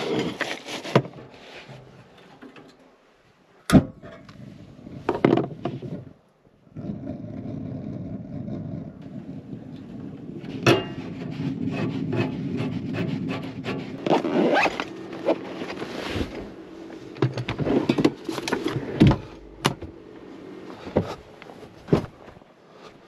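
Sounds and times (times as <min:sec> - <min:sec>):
gear rubbing and scraping: 0:00.0 - 0:02.2, 0:07.9 - 0:23.0.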